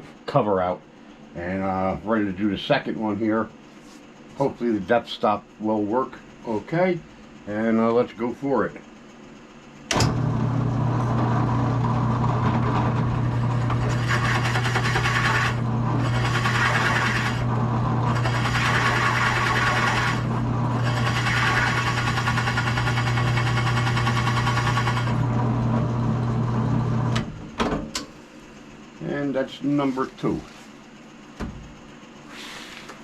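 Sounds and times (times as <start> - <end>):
drill press running: 9.1 - 29.0
drill bit boring into wood: 10.0 - 26.0.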